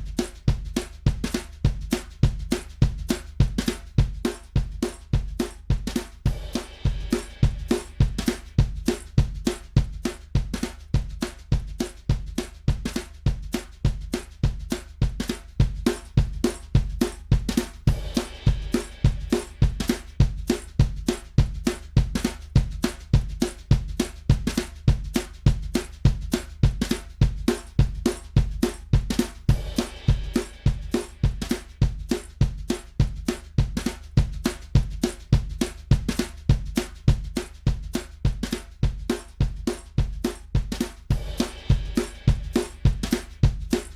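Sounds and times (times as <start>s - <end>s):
drum kit groove: 0.0s - 43.9s
cymbal wash: 17.9s - 20.1s, 29.5s - 31.5s, 41.1s - 43.3s.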